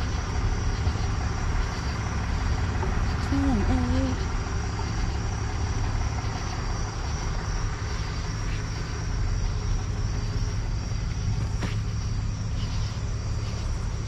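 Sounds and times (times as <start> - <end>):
crickets chirping: 0.0 - 14.0
vehicle engine idling: 0.0 - 14.0.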